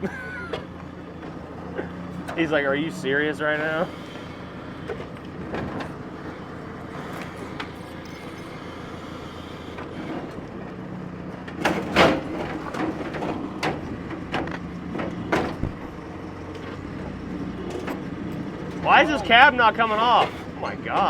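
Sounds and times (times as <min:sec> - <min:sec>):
diesel engine running: 0:00.0 - 0:21.0
metal creaks and bangs: 0:09.7 - 0:16.2.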